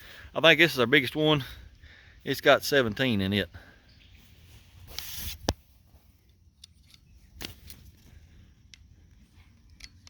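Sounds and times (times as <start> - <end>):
brief rustle: 4.4 - 8.1.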